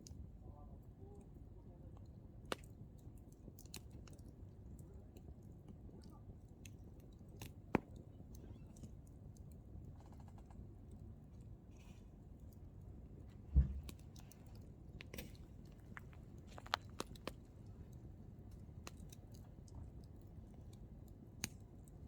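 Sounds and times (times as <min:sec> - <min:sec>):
firewood crackling: 0:10.8 - 0:22.0.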